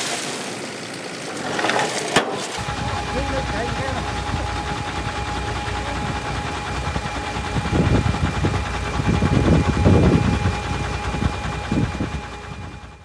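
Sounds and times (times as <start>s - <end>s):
rapid rattling clatter: 0.0s - 2.6s
diesel construction machinery running: 0.0s - 13.0s.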